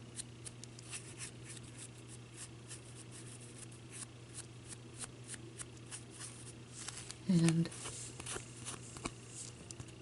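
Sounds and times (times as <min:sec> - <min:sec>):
low steady hum: 0:00.0 - 0:10.0
brush rustling on foil: 0:06.2 - 0:09.5.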